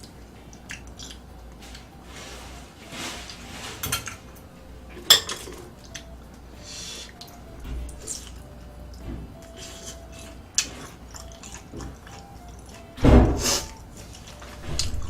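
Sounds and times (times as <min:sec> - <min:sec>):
utensils clinking against dishes: 0:02.8 - 0:06.1.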